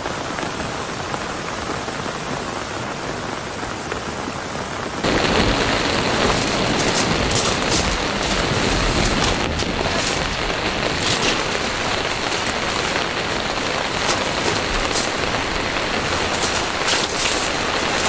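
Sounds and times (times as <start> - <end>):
heavy rain falling: 0.0 - 18.0
close raindrop hits: 5.0 - 18.0.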